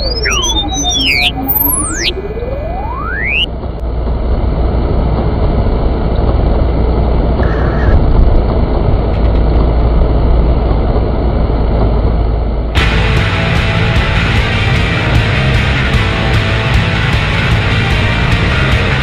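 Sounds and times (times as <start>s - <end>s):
short faint beep: 0.0s - 3.5s
car engine and road noise: 0.0s - 19.0s.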